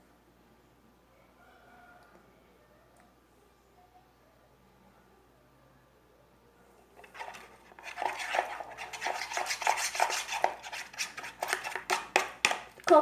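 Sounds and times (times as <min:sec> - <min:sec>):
spoon stirring slime: 0:07.0 - 0:13.0.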